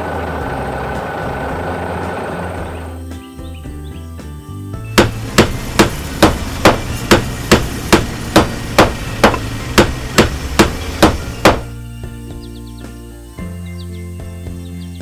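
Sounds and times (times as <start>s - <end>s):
hammer striking: 5.0s - 11.7s.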